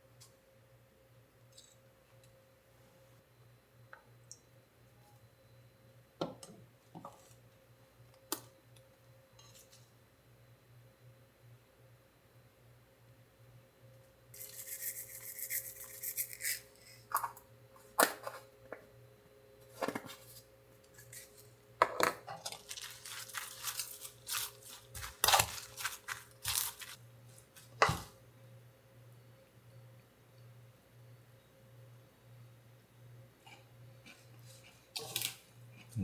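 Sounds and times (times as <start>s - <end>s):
faint steady hum: 0.0s - 36.0s
dishes knocking and clinking: 21.8s - 22.4s, 27.8s - 28.1s.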